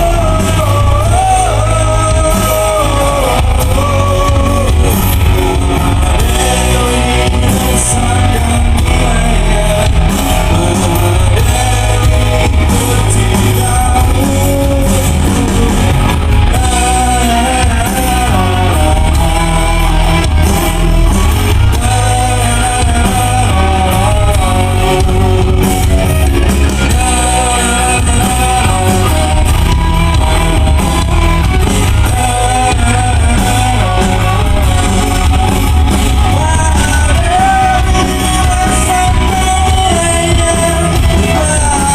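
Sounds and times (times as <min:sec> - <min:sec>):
person singing: 0:00.0 - 0:41.9
rock band playing: 0:00.0 - 0:41.9.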